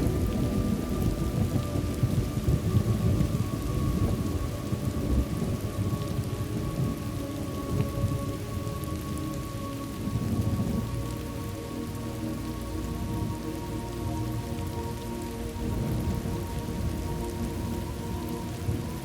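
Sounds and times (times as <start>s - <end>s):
thunder rumbling: 0.0s - 9.2s, 9.9s - 11.5s, 15.6s - 19.0s
steady rain falling: 0.0s - 19.0s.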